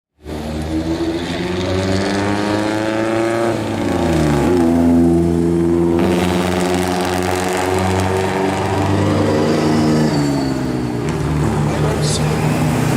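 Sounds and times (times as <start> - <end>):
car engine accelerating: 0.2 - 12.9.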